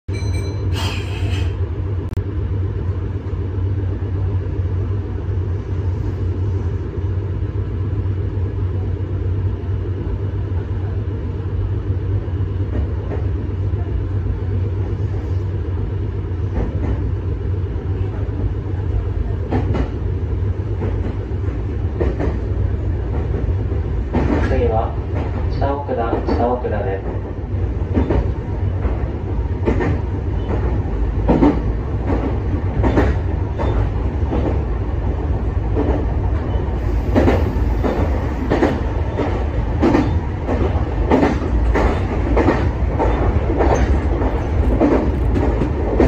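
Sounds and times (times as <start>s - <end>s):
electric train hum and rumble: 0.1s - 46.0s.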